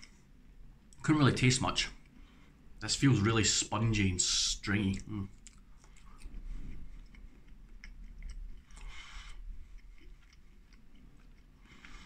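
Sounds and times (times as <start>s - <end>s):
person chewing food: 4.8s - 12.0s.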